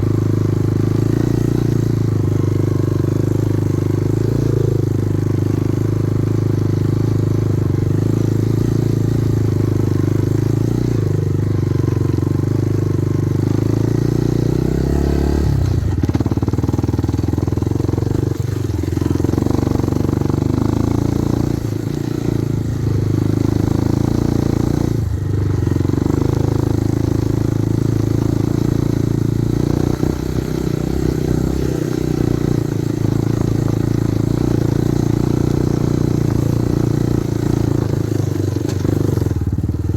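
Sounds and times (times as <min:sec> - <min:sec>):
motorcycle engine running: 0:00.0 - 0:39.9
sharp knocks over rough ground: 0:38.0 - 0:39.3.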